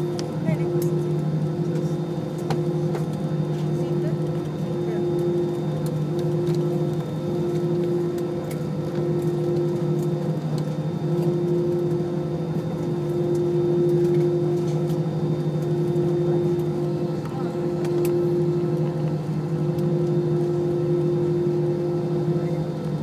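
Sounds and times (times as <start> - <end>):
jet engines droning in cabin: 0.0 - 23.0.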